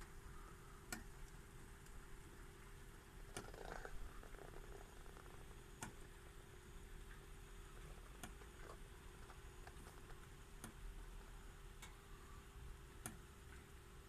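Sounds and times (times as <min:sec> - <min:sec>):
faint low rumble: 0:00.0 - 0:14.0
faint clicks: 0:03.3 - 0:06.1.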